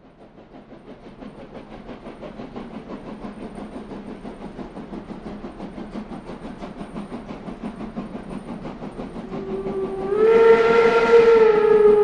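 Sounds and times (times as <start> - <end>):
train chugging rhythmically: 0.0 - 12.0.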